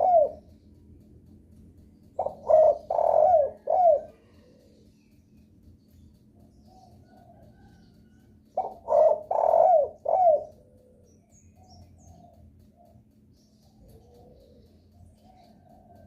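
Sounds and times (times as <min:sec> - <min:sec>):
dove cooing: 0:00.0 - 0:00.5, 0:02.2 - 0:04.9, 0:06.6 - 0:12.9, 0:13.7 - 0:16.0.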